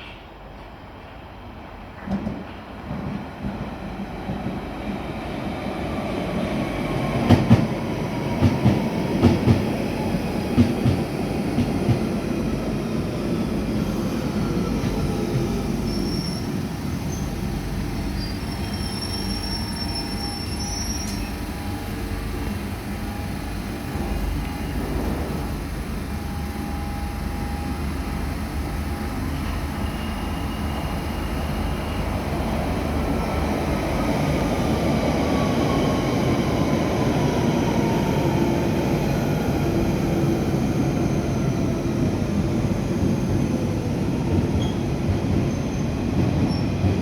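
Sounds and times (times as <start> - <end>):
electric train rumbling on rails: 0.0 - 47.0
high wheel squeal: 15.7 - 21.8, 29.2 - 32.4.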